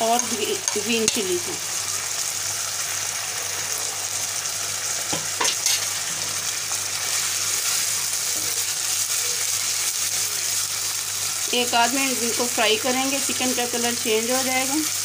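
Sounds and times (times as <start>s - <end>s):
food sizzling in hot oil: 0.0s - 15.0s
spatula scraping a wok: 5.2s - 8.6s.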